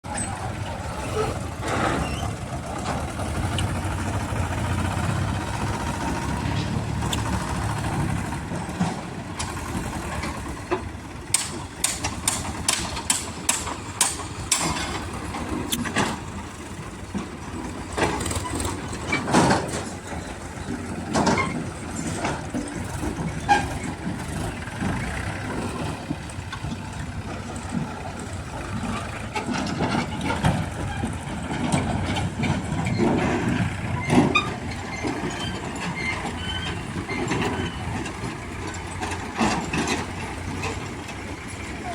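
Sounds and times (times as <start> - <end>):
diesel engine running: 0.0 - 41.9
sharp metallic clanks: 11.3 - 16.2.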